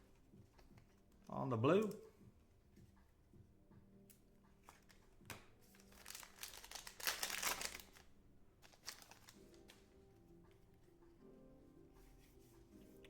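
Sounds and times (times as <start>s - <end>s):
cards being handled: 0.1s - 2.1s, 4.6s - 9.9s
wrapper crinkling: 5.6s - 9.8s.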